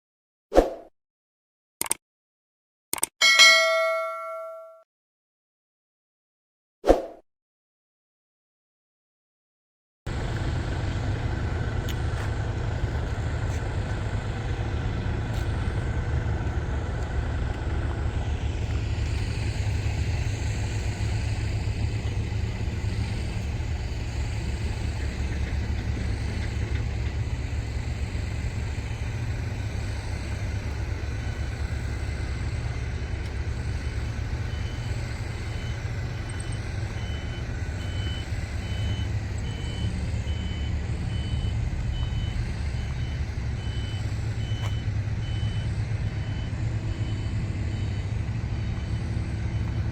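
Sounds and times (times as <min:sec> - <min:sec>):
diesel engine rumbling: 0:10.1 - 0:49.9
high-pitched warning beeps: 0:34.5 - 0:49.7.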